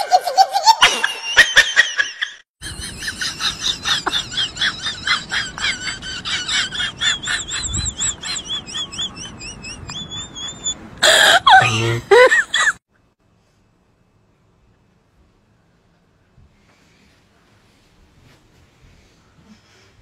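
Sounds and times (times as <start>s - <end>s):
people laughing: 0.0s - 12.8s
bird chirping: 7.0s - 10.8s.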